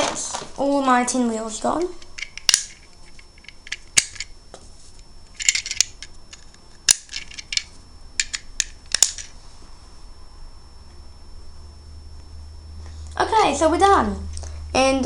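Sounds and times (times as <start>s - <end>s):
plastic bricks clicking and clattering: 5.4s - 9.3s.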